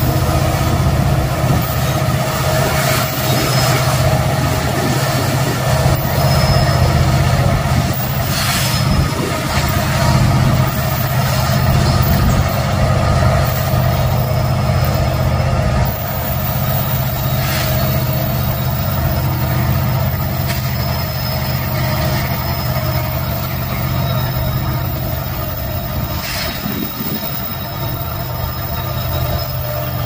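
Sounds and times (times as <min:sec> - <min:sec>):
diesel locomotive engine drone: 0:00.0 - 0:30.0.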